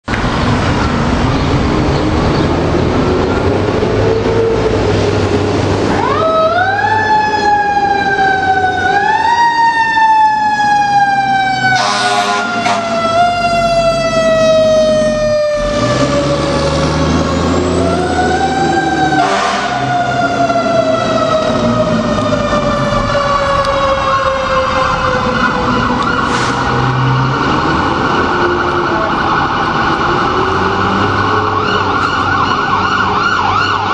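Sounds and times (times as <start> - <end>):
truck engine rumble: 0.0 - 33.9
fire engine siren wailing: 1.6 - 33.9
truck horn blast: 11.8 - 13.0, 19.2 - 19.9.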